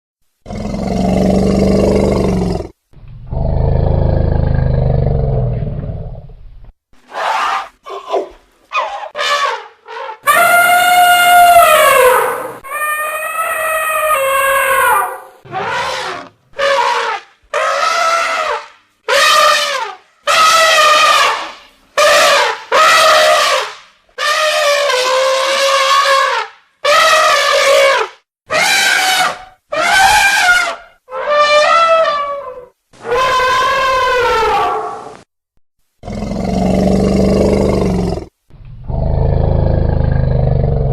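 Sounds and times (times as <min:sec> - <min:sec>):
elephants trumpeting: 0:07.1 - 0:35.1.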